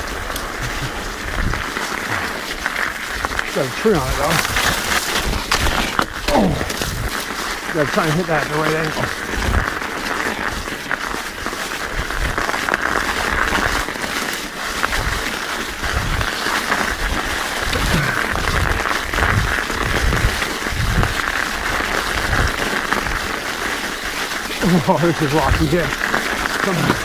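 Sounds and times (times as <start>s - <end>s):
studded tires crunching on ice: 0.0s - 27.0s.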